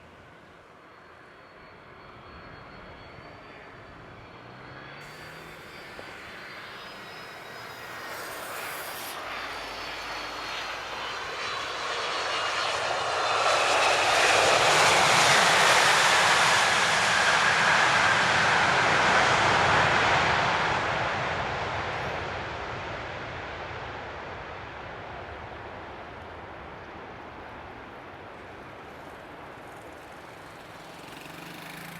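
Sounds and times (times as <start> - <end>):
faint high whine: 0.0 - 31.9
jet engine noise: 0.0 - 31.9.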